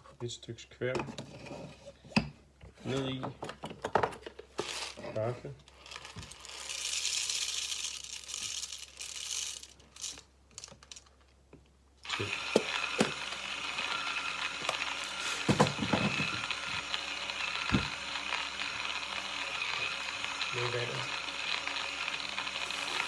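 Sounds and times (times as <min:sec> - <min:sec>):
coffee grinder grinding beans: 0:04.6 - 0:11.1, 0:12.0 - 0:23.0
coffee beans rattling into grinder: 0:05.8 - 0:11.2, 0:12.0 - 0:23.0.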